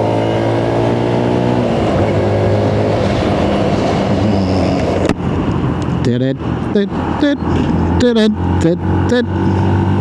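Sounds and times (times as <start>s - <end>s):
wind on microphone: 0.8s - 8.6s.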